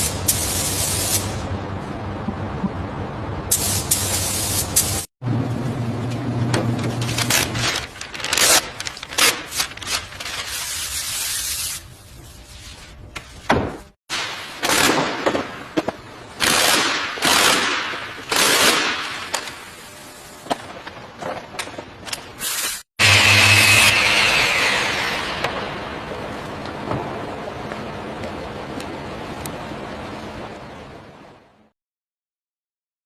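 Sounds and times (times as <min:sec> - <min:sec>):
low hum: 0:01.4 - 0:03.5.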